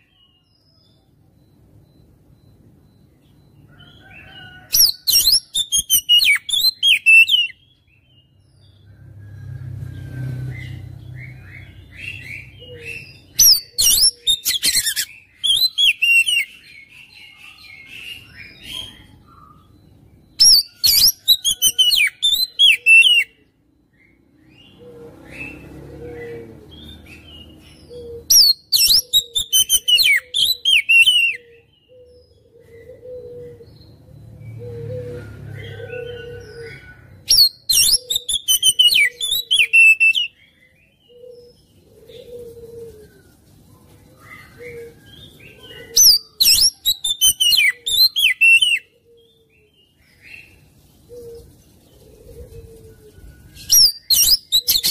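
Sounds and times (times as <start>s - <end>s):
bird whistling song: 4.3s - 8.1s, 10.0s - 19.8s, 20.4s - 23.4s, 26.8s - 32.1s, 35.4s - 41.5s, 44.2s - 49.4s, 53.2s - 54.9s.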